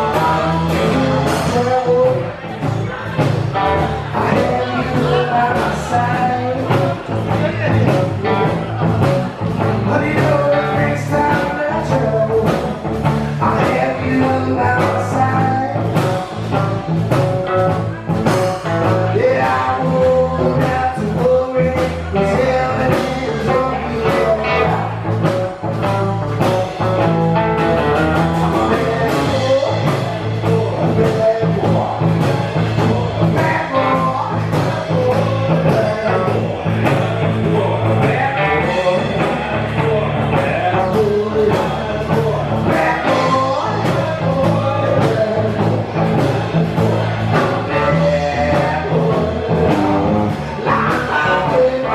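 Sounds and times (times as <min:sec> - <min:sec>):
blues-rock band playing: 0:00.0 - 0:51.9
person singing: 0:00.0 - 0:51.9.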